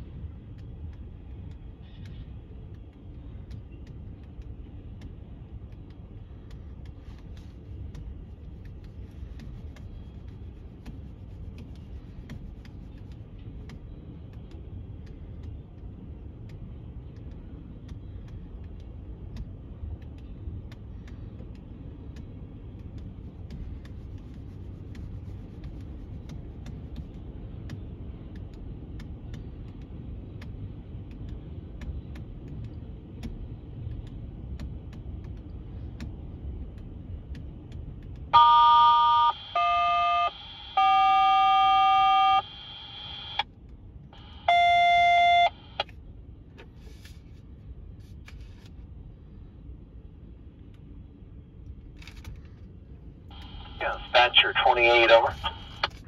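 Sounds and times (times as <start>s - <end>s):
touch-tone beeps over radio: 38.4s - 43.4s, 44.4s - 45.8s, 53.6s - 55.8s.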